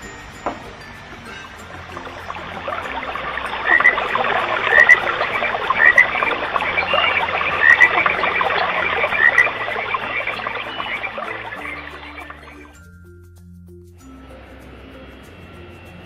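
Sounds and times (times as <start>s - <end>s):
dense chorus of chirping calls: 0.0s - 12.8s.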